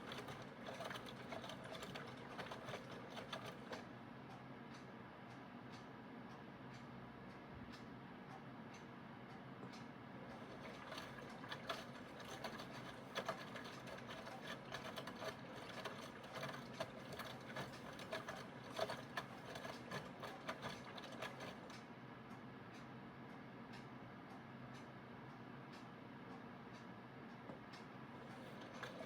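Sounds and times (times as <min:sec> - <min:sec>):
washing machine motor humming: 0:00.0 - 0:03.9, 0:10.2 - 0:21.7, 0:28.0 - 0:29.0.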